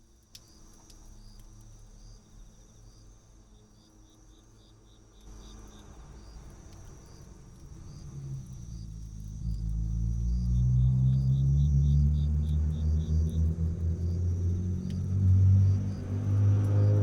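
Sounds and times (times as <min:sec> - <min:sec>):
crickets chirping: 0:00.4 - 0:17.0
low rumble: 0:07.1 - 0:17.0.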